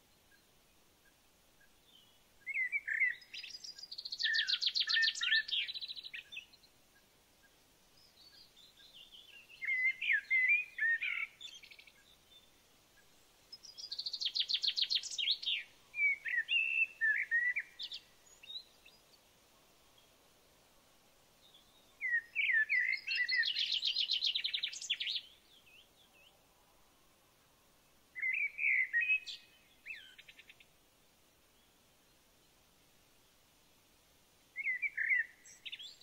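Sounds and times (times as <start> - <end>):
songbird trilling and warbling: 1.9 - 6.6, 7.4 - 12.5, 13.5 - 19.0, 21.5 - 26.3, 28.2 - 30.6, 34.6 - 36.0.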